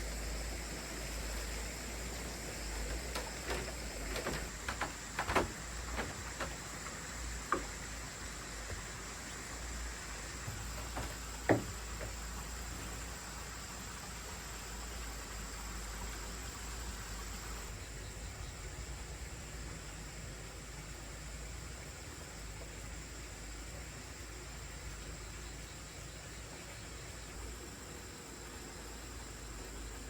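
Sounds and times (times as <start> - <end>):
steady hiss: 0.0 - 30.0
irregular knocks and clicks: 2.7 - 9.1, 10.2 - 12.7.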